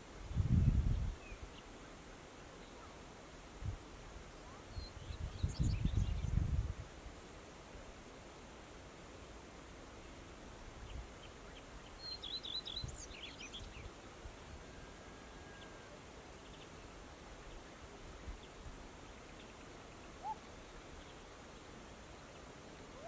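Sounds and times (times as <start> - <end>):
wind buffeting microphone: 0.2 - 1.2, 5.0 - 6.8
songbird singing: 0.4 - 3.0, 4.4 - 6.7, 10.0 - 23.0
faint high bird calls: 11.2 - 16.9, 19.2 - 21.3, 22.2 - 23.0.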